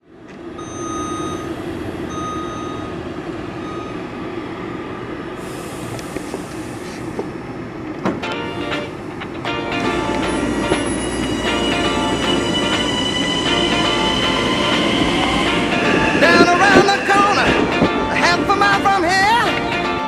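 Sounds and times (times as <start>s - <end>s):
train rumbling by: 0.0s - 20.0s
high beeping tone: 0.6s - 3.0s, 3.6s - 4.1s.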